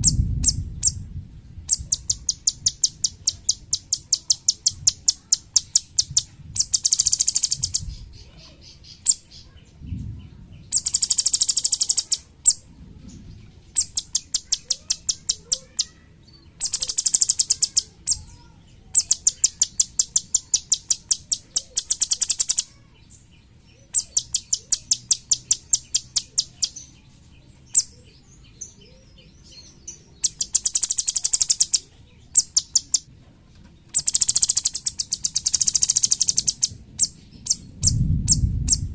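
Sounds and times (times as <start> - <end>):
bird singing rapid high notes: 0.0 - 9.5, 10.6 - 12.6, 13.7 - 27.0, 27.6 - 33.1, 33.9 - 38.9
bird chips: 10.6 - 12.6, 13.6 - 16.0, 16.6 - 33.1, 33.8 - 37.7.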